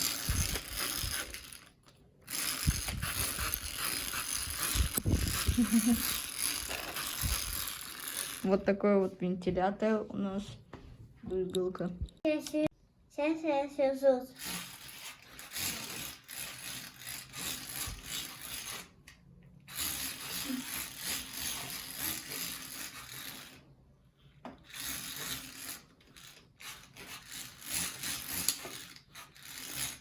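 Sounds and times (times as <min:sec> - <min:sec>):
toy fan gears whirring: 0:00.0 - 0:09.0, 0:13.8 - 0:30.0.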